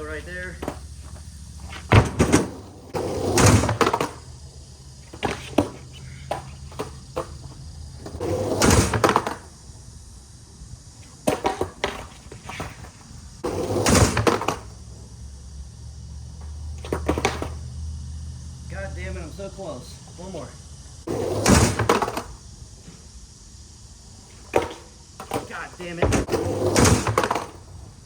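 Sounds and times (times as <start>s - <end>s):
skateboard wheels rolling on concrete: 0.0s - 28.0s
skateboard clacking on bench: 0.6s - 4.3s, 5.1s - 9.5s, 11.2s - 12.9s, 16.8s - 17.6s, 24.4s - 27.7s.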